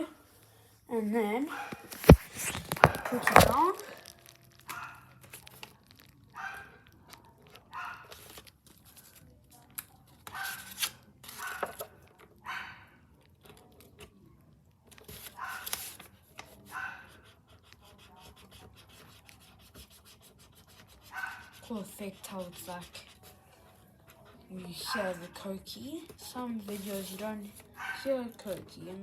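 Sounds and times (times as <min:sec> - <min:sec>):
marker rubbing on paper: 0:01.8 - 0:03.8, 0:17.1 - 0:23.4, 0:26.7 - 0:27.4.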